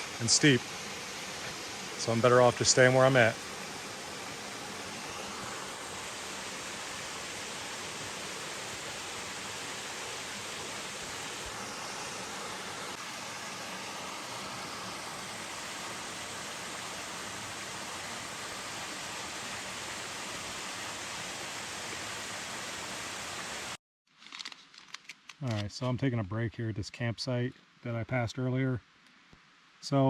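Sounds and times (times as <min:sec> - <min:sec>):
waterfall rushing into pool: 0:00.0 - 0:23.8.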